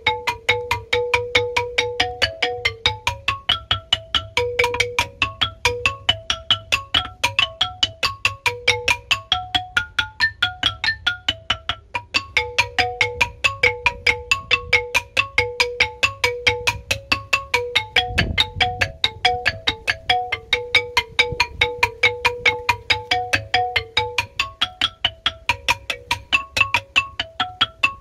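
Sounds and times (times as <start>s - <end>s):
bamboo xylophone notes: 0.0s - 28.0s.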